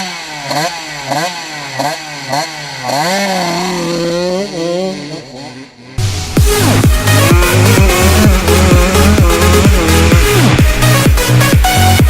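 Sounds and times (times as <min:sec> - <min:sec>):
dirt bike engine revving: 0:00.0 - 0:12.0
electronic dance music: 0:06.0 - 0:12.0.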